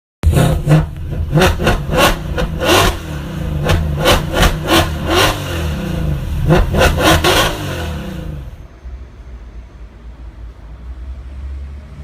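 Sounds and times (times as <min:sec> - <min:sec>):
car engine revving: 0:00.2 - 0:08.7.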